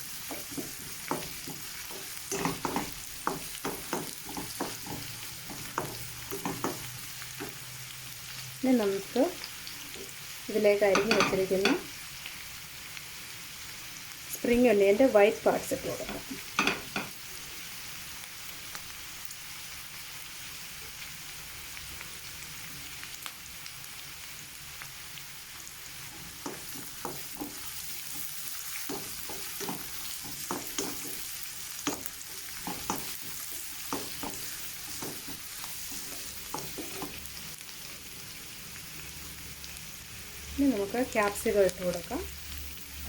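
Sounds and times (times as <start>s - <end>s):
vegetables sizzling in oil: 0.0s - 43.0s
spatula scraping a pan: 0.1s - 7.6s, 26.0s - 37.3s.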